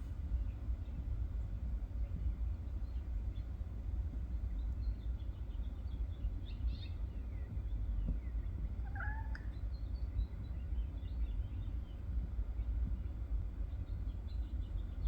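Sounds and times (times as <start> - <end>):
faint bird chirps: 6.4 - 11.8
cat chirping meow: 8.8 - 9.6.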